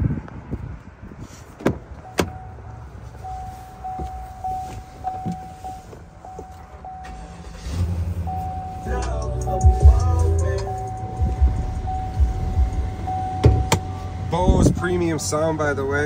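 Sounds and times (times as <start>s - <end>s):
car door clicks: 1.6s - 2.4s, 10.8s - 14.0s
electronic warning chime: 3.2s - 7.6s, 8.2s - 14.3s.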